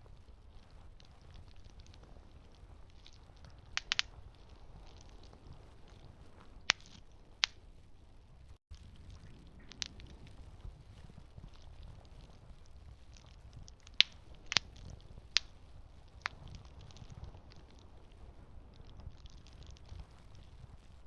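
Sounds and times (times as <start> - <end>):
campfire low rumble: 0.0 - 21.0
fire crackling pops: 0.0 - 21.0.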